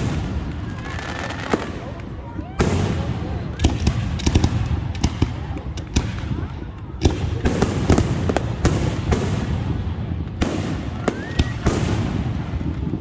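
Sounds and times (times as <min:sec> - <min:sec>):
fireworks bangs and cracks: 0:00.0 - 0:13.0
firework rising whistle: 0:10.8 - 0:12.3.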